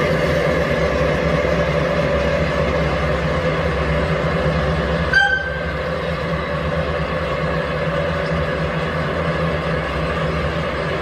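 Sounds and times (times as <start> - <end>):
train rumble: 0.0 - 11.0
locomotive whistle toot: 5.1 - 5.8.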